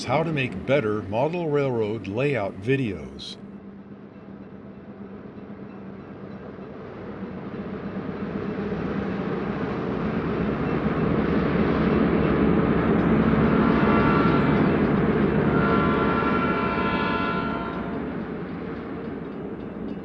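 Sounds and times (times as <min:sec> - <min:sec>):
steady tones: 0:00.0 - 0:03.5
diesel freight train rumbling: 0:00.0 - 0:20.0.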